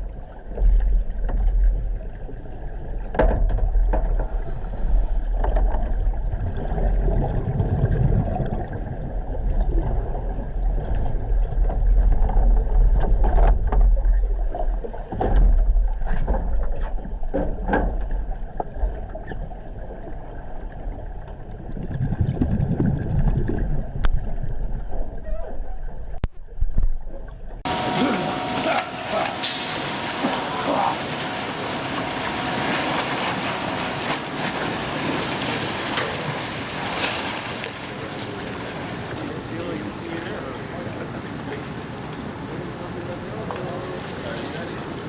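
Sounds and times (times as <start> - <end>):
steady low rumble: 0.0 - 28.4
water churning and sloshing: 0.0 - 45.0.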